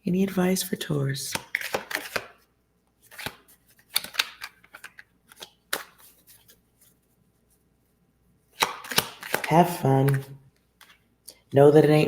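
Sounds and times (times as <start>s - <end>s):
cards being shuffled: 1.3s - 2.4s, 3.0s - 7.1s, 8.6s - 11.0s.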